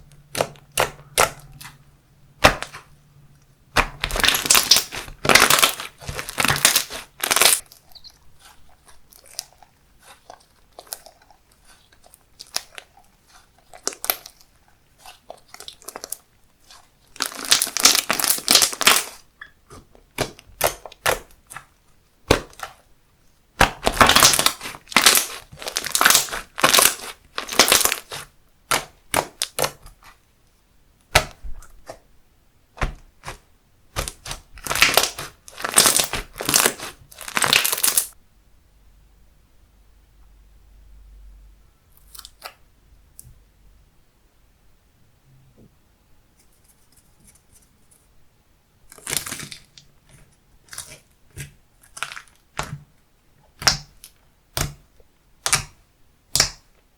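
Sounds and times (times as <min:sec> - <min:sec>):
slime crackling and popping: 0:03.7 - 0:22.8, 0:23.6 - 0:29.9, 0:33.2 - 0:38.2, 0:48.9 - 0:49.9, 0:50.6 - 0:52.8, 0:53.5 - 0:54.8, 0:55.4 - 0:56.7.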